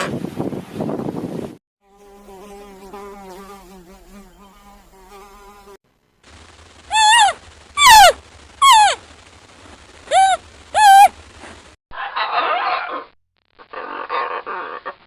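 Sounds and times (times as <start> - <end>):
flying insect buzzing: 1.8 - 9.3
high falling animal call: 6.8 - 9.0, 10.0 - 11.2
noisy animal sound: 6.8 - 9.0, 10.0 - 15.0.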